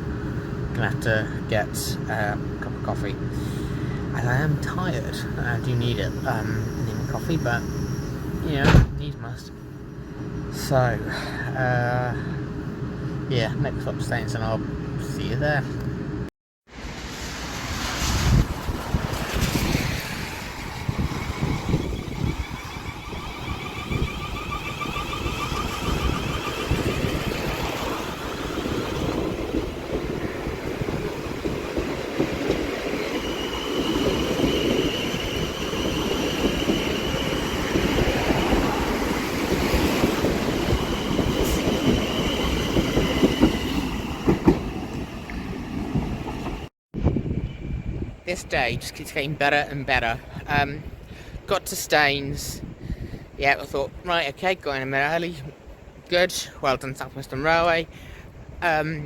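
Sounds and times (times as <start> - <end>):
train wheels rumbling on track: 0.0 - 16.0, 16.7 - 46.7
high whine of train: 0.0 - 49.3, 49.9 - 51.5, 52.6 - 54.0, 55.4 - 58.7.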